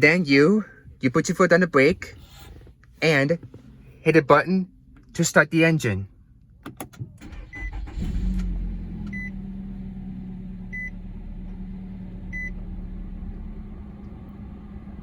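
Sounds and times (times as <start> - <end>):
car engine starting and idling: 6.4 - 15.0.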